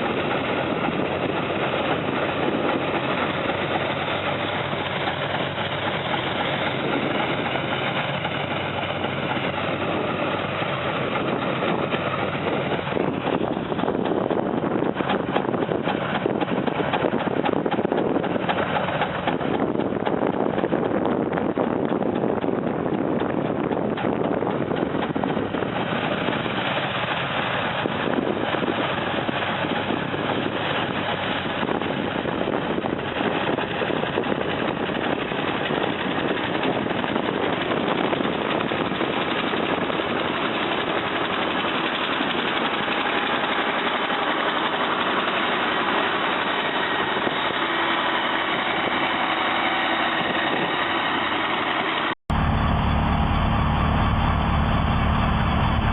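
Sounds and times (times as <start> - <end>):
snow-removal machine engine: 0.0 - 55.9.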